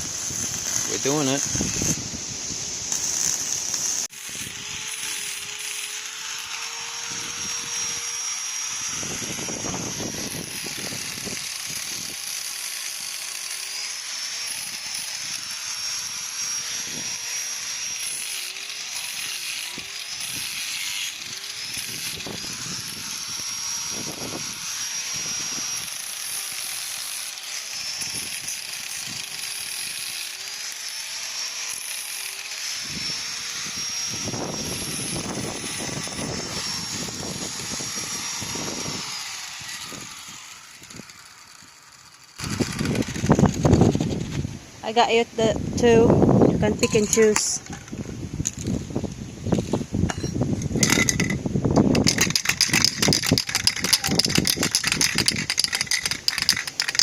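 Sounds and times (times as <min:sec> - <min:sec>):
rough noise: 0:46.6 - 0:57.0.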